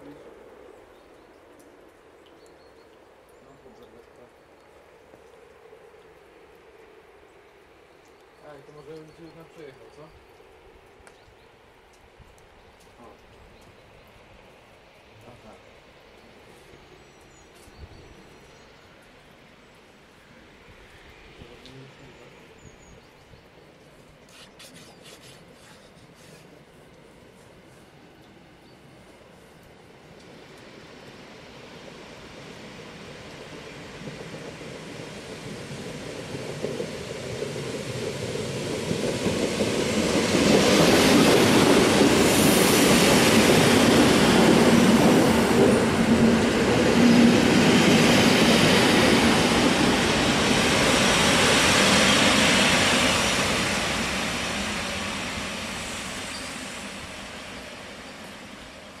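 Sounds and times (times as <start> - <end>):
electric train passing: 25.4 - 59.0.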